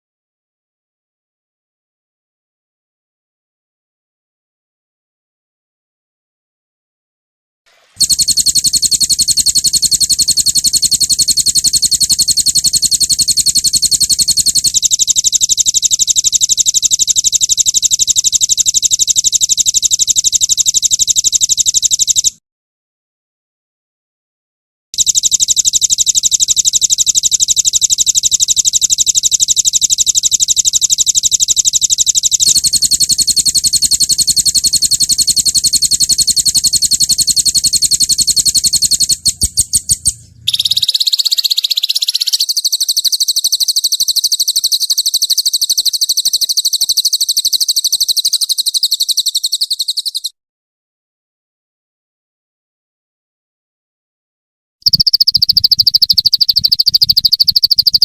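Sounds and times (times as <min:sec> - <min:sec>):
songbird fast trills: 0:08.0 - 0:22.3, 0:25.0 - 0:50.3, 0:54.8 - 0:58.0.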